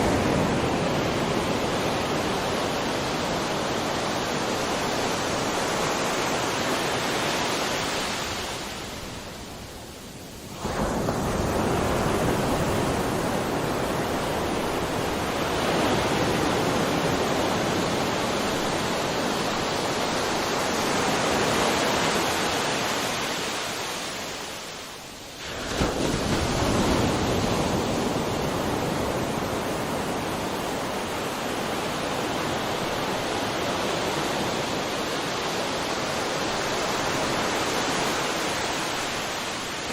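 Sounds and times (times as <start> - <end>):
ocean waves breaking: 0.0 - 9.2, 10.5 - 39.9.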